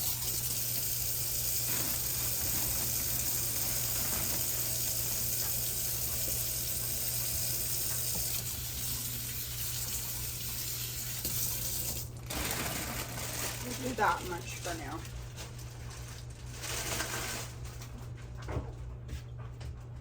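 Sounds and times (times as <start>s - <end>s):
tap water running into sink: 0.0s - 13.2s.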